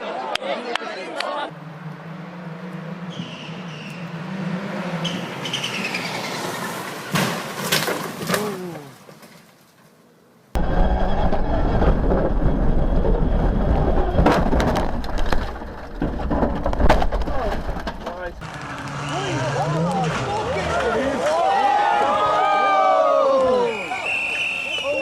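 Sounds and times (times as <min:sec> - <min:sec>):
car rumbling at speed: 0:01.4 - 0:07.0, 0:10.6 - 0:21.3
rally car engine: 0:01.4 - 0:07.7, 0:10.6 - 0:21.4
rattling clatter: 0:10.6 - 0:18.4.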